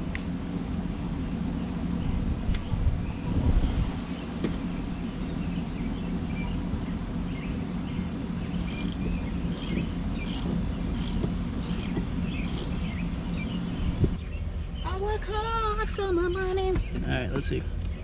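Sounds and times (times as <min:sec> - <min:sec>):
steady low rumble: 0:00.0 - 0:18.0
socket ratchet clicking: 0:08.7 - 0:12.7.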